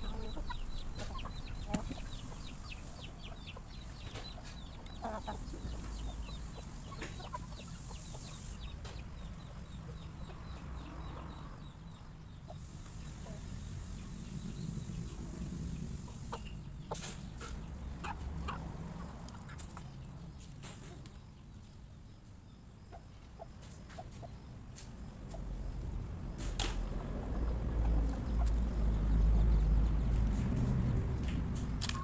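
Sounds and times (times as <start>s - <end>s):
chickens clucking: 0.0s - 21.8s, 22.7s - 32.0s
chickens pecking clicks: 23.6s - 29.3s, 30.1s - 32.0s.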